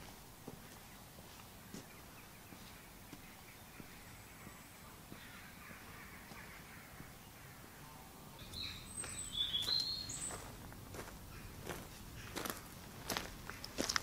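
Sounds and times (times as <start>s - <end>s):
footsteps on paved path: 0.0s - 7.7s, 8.5s - 14.0s
bird calling high-pitched: 8.4s - 10.5s.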